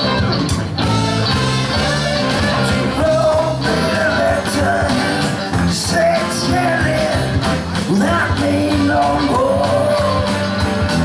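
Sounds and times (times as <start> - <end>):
rock and roll band playing: 0.0 - 11.0.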